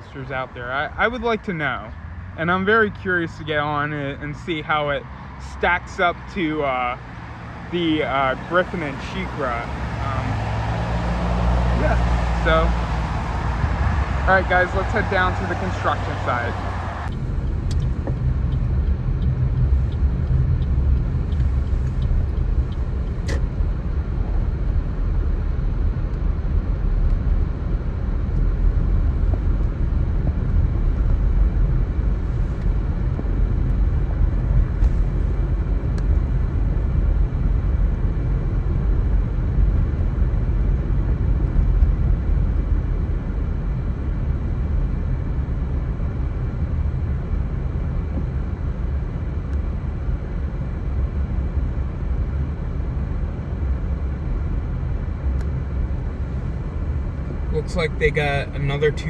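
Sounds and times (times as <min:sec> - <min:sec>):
car driving rumble: 0:00.0 - 0:59.0.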